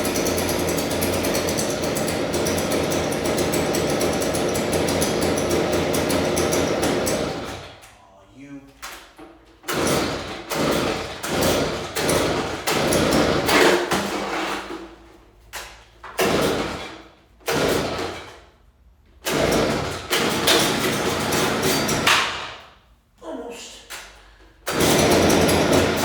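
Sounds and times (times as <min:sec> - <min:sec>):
leaf blower engine starting: 0:24.6 - 0:26.0.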